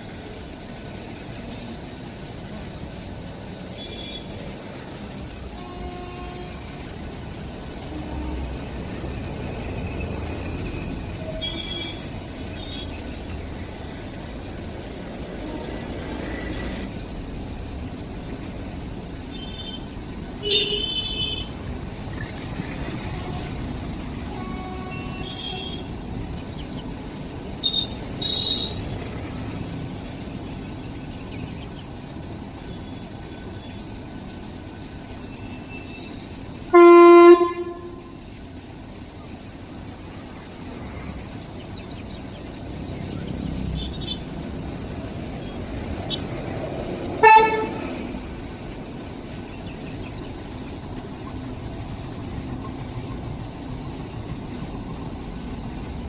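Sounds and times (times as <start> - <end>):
steady background rumble: 0.0 - 35.2
horn blast: 36.7 - 38.1, 47.2 - 48.0.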